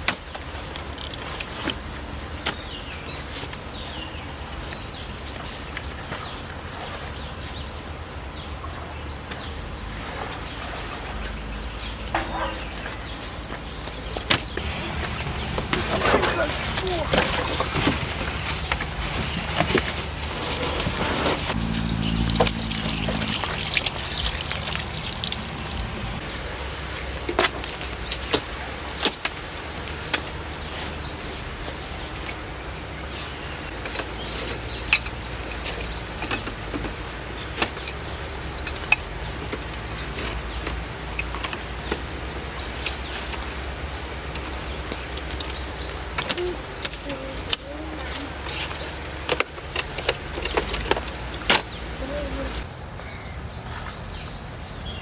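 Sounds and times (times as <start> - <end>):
birds chirping: 1.1 - 55.0
low hum: 14.6 - 26.3
water drops tapping: 22.3 - 26.2.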